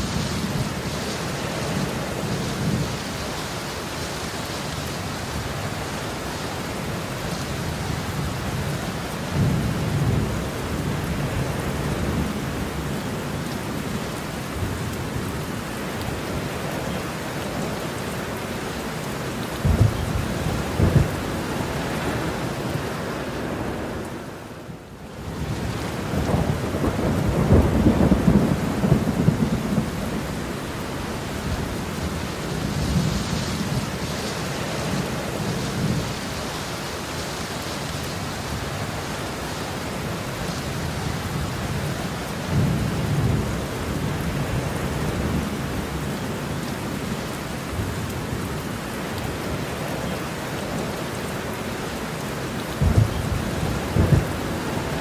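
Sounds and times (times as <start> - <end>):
heavy rain falling: 0.0 - 55.0
thunder rumbling: 19.6 - 22.5, 25.4 - 34.2, 52.7 - 55.0.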